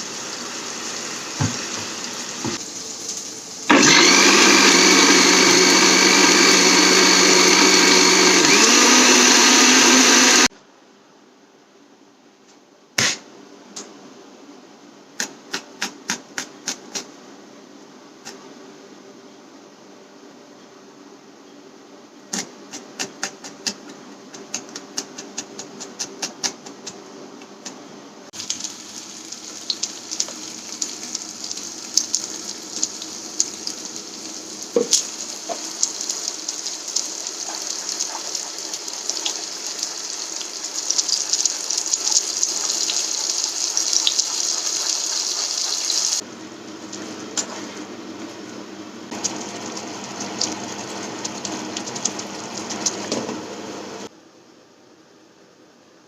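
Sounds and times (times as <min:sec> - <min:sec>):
food sizzling in a hot pan: 0:00.0 - 0:04.6, 0:28.4 - 0:46.2.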